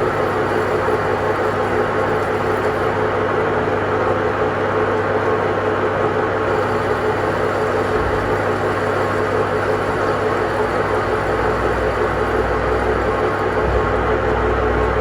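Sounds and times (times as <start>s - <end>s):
machine humming: 0.0s - 5.0s, 6.4s - 15.0s.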